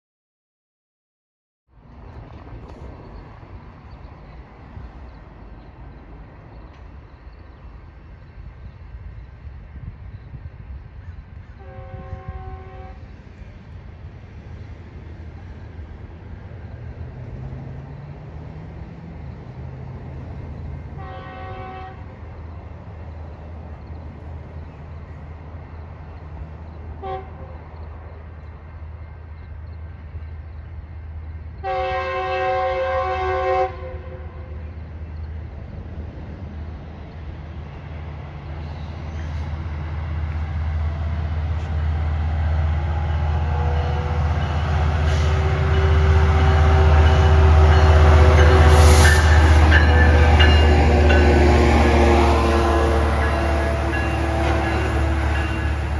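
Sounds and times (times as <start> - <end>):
train rumble: 1.7 - 55.9
locomotive air horn blasts: 11.6 - 13.1, 21.0 - 22.2, 27.0 - 27.6, 31.6 - 34.6, 43.3 - 55.9.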